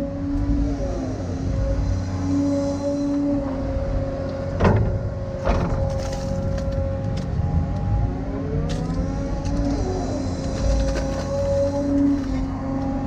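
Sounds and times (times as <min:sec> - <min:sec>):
excavator engine and hydraulics: 0:00.0 - 0:13.0.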